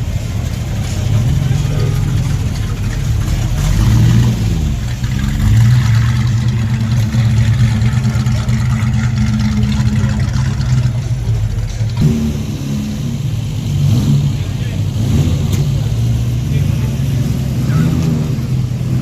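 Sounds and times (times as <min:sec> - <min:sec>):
car engine revving and idling: 0:00.0 - 0:19.0.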